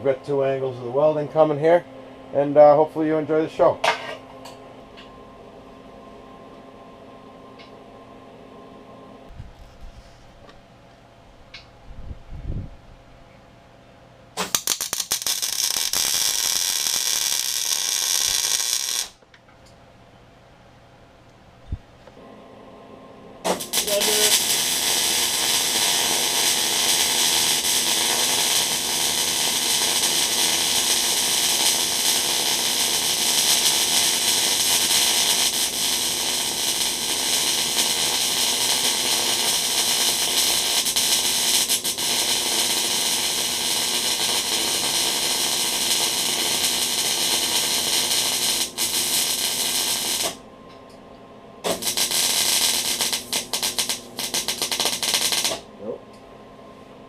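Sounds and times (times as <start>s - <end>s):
welding arc crackling: 14.4s - 19.2s, 23.4s - 50.4s, 51.6s - 55.6s.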